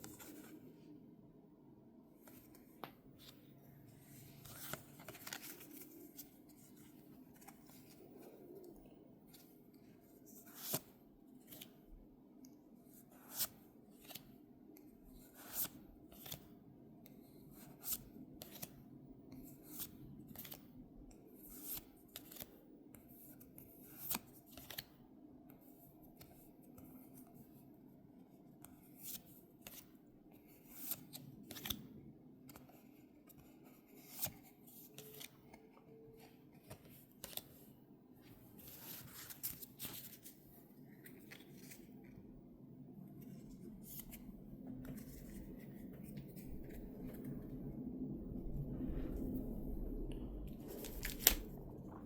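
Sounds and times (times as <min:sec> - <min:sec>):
cardboard packaging rustling: 0:50.6 - 0:52.0.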